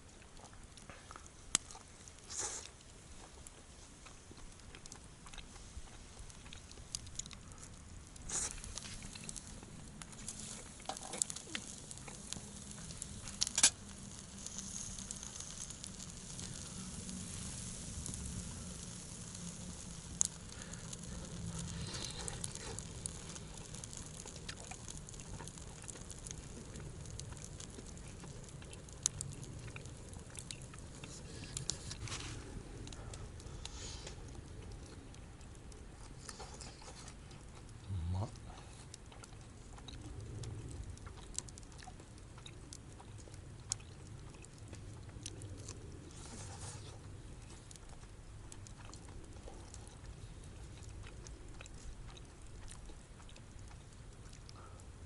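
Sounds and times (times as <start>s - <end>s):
campfire crackling: 0.0s - 55.0s.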